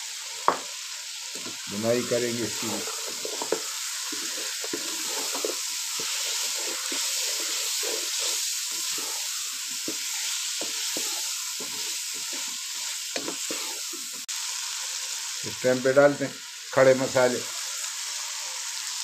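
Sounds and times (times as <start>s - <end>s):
vegetables sizzling in hot oil: 0.0s - 19.0s
wooden spatula scraping pan: 2.5s - 14.2s.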